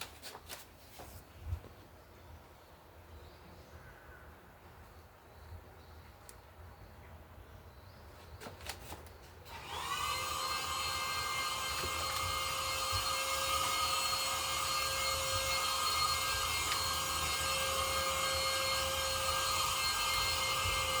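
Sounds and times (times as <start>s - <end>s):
vacuum cleaner motor whine: 9.5s - 21.0s.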